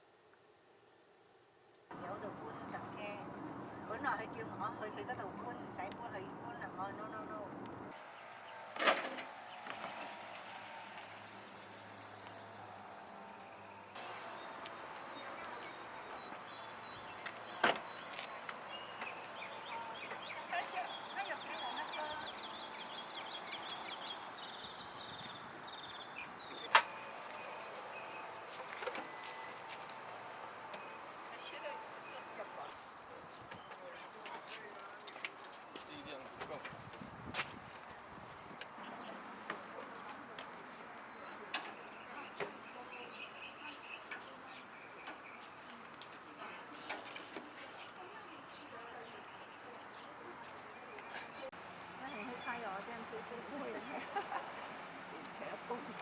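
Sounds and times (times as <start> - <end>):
small birds chirping: 14.0 - 36.8, 37.7 - 56.0.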